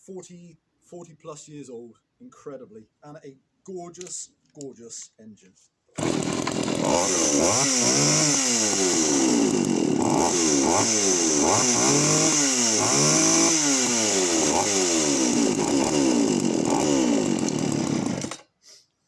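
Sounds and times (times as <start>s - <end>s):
chainsaw engine revving: 6.0s - 18.5s.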